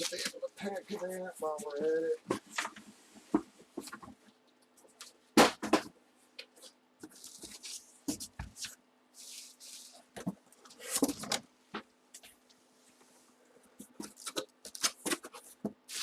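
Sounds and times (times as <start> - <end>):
plastic packaging crinkling: 0.0 - 1.0, 7.0 - 7.9, 14.0 - 16.0.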